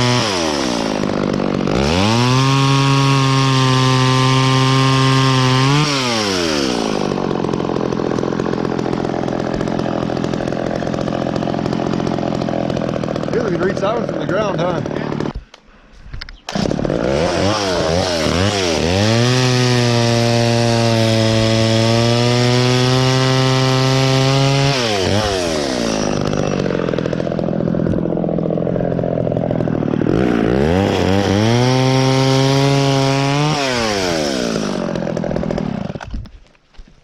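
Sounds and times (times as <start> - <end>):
chainsaw revving: 0.0 - 15.5, 16.5 - 36.3
chainsaw idling: 0.0 - 15.6, 16.5 - 36.2.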